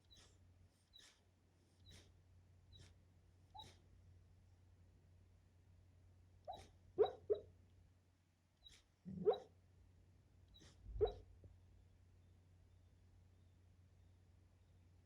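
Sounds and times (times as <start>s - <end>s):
sleeping dog woofing and yipping: 0.9s - 1.2s, 1.8s - 2.1s, 2.7s - 2.9s, 3.5s - 3.8s, 6.5s - 7.5s, 8.6s - 9.5s, 10.5s - 11.3s.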